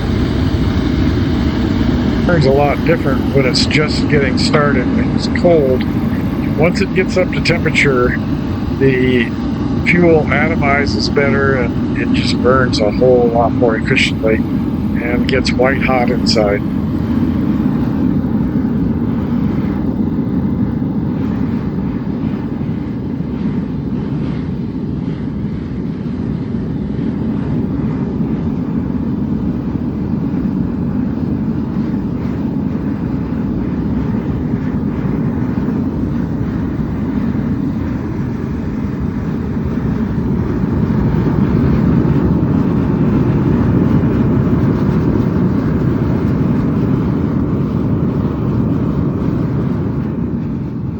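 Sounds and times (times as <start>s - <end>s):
furnace burner rushing: 0.0s - 22.5s.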